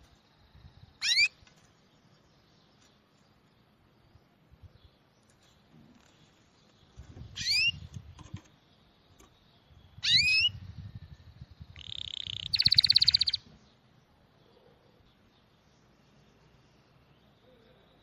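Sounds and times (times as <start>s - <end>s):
songbird whistles and trill: 0.7s - 1.4s, 7.3s - 8.0s, 9.9s - 11.0s, 11.7s - 13.5s.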